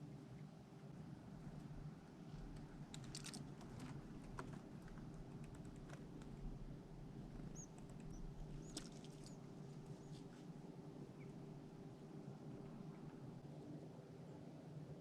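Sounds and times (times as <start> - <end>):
faint steady hum: 0.0 - 15.0
small animals clicking and scratching: 2.3 - 6.5, 7.4 - 9.4.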